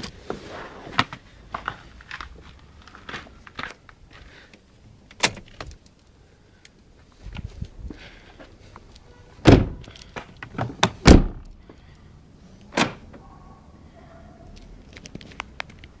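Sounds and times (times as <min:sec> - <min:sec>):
car doors shutting: 0:09.4 - 0:09.8, 0:10.5 - 0:11.5.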